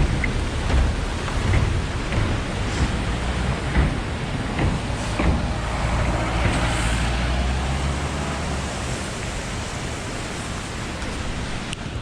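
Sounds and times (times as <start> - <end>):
low engine hum: 0.0 - 12.0
road and wind noise: 0.0 - 12.0.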